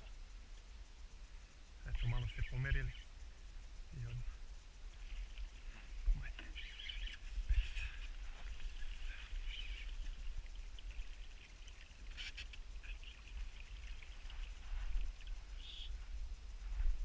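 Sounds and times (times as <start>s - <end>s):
steady low rumble: 0.0s - 17.0s
birds calling: 5.0s - 16.1s.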